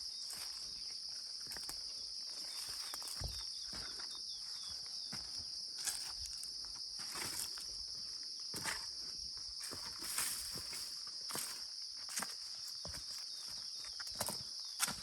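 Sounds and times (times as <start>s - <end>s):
insects droning: 0.0s - 15.0s
footsteps: 2.6s - 4.1s.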